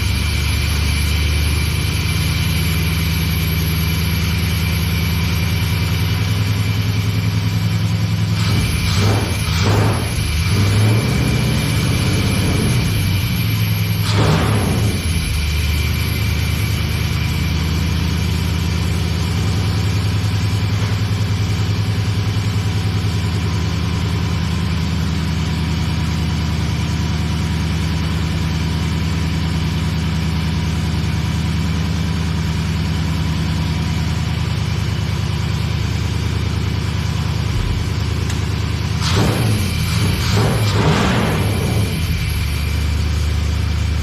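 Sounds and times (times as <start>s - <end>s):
truck engine idling: 0.0s - 44.0s.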